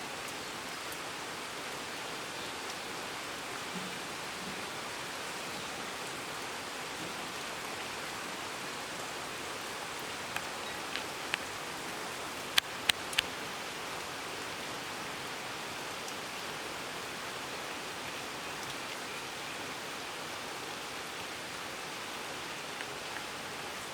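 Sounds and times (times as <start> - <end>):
rain-like hiss: 0.0 - 23.9
sharp clicks: 12.5 - 13.3.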